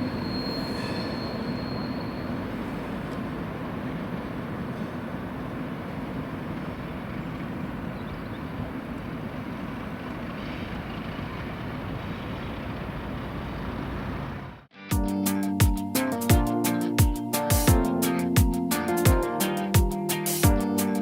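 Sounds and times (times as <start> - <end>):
diesel locomotive rumbling: 0.0 - 14.7.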